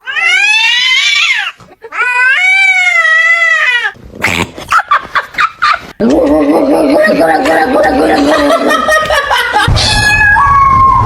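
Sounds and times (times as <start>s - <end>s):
cat meowing: 9.8s - 11.0s.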